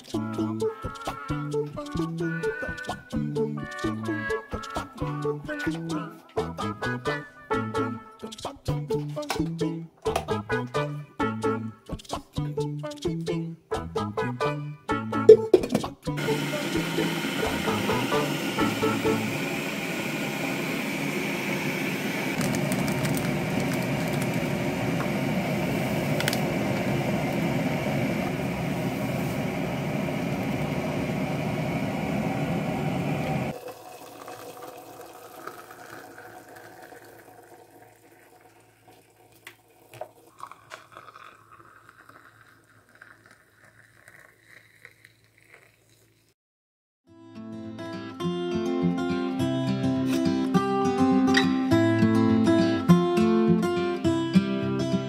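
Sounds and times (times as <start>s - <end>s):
water boiling: 16.2s - 46.3s.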